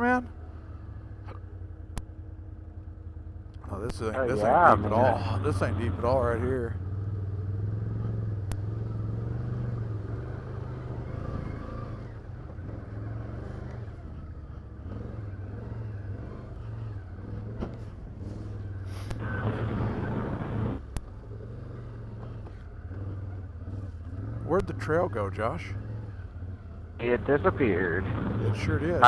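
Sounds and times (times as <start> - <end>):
atv engine running: 0.0 - 29.0
rush of noise: 27.0 - 29.0.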